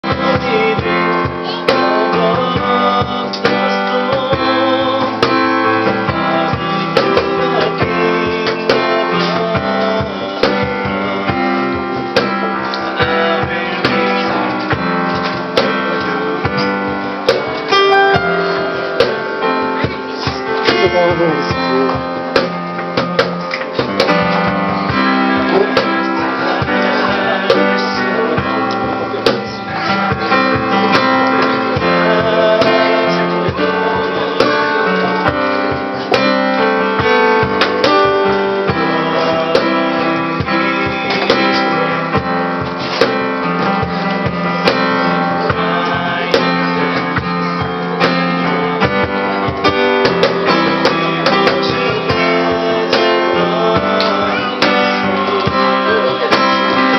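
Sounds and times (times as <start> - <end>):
cajon beat: 0.0 - 56.9
strummed acoustic guitar: 0.0 - 56.9.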